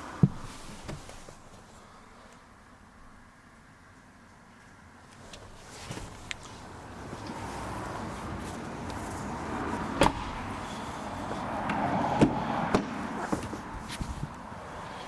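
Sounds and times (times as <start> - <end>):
car noise rush: 5.2 - 15.0
sharp knocks: 10.0 - 10.6.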